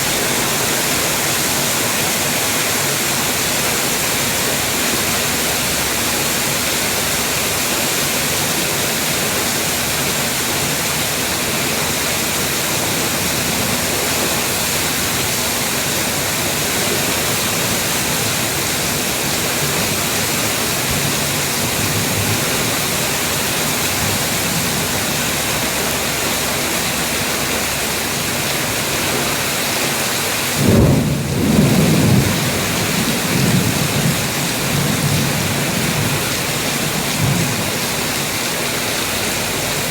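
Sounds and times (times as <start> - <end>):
low rolling rumble: 0.0 - 29.5
heavy rain falling: 0.0 - 39.9.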